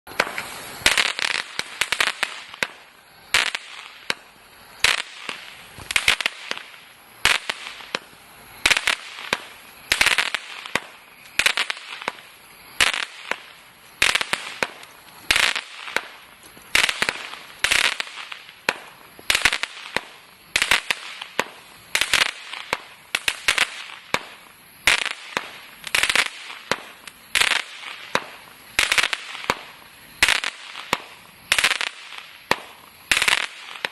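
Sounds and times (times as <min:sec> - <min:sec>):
firework bangs: 0:00.1 - 0:33.9
firework crackling bursts: 0:00.1 - 0:33.9.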